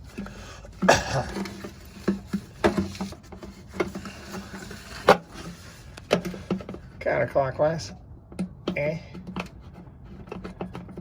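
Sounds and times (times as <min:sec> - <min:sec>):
person grunting with effort: 0:00.9 - 0:01.4.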